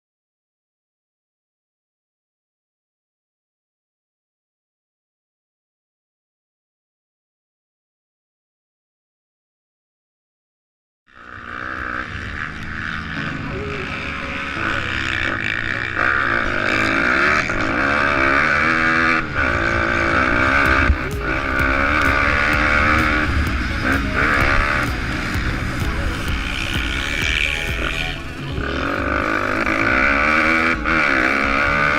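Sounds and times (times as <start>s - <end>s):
pit bike engine revving: 11.1s - 31.9s.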